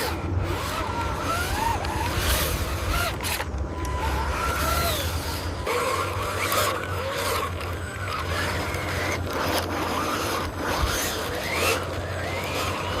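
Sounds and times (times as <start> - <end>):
electric motor hum: 0.0 - 13.0
mechanical scraping: 0.0 - 13.0
motor whining squeals: 0.0 - 13.0.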